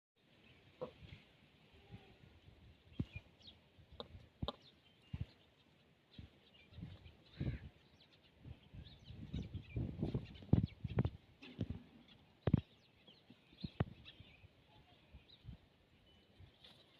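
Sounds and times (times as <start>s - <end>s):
peafowl pecking taps: 4.0s - 4.6s.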